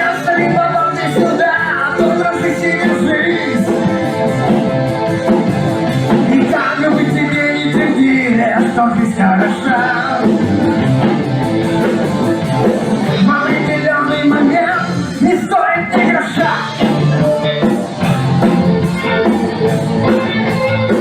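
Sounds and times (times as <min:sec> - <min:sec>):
person singing: 0:00.0 - 0:04.1, 0:06.1 - 0:10.6, 0:13.0 - 0:19.2
guitar: 0:00.0 - 0:21.0
rock band playing: 0:00.0 - 0:21.0.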